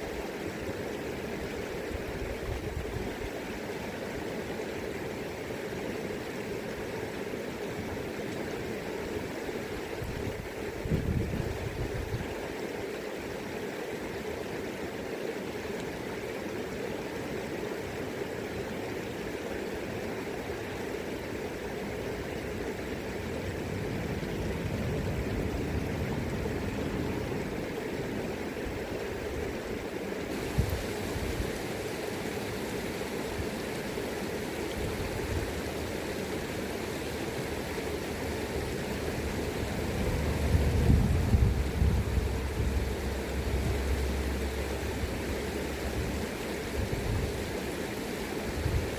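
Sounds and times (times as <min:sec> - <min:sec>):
river current rushing: 0:00.0 - 0:48.9
wind rumble on microphone: 0:02.1 - 0:03.3, 0:09.9 - 0:12.4, 0:23.4 - 0:28.5, 0:30.4 - 0:31.6, 0:37.9 - 0:47.6, 0:48.5 - 0:48.9.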